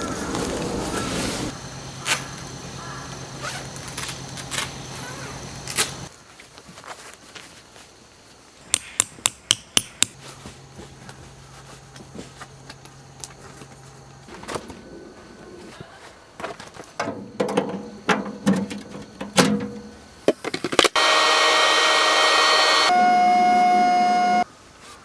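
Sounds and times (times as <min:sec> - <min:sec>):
tent pegs being hammered: 0:08.7 - 0:10.2.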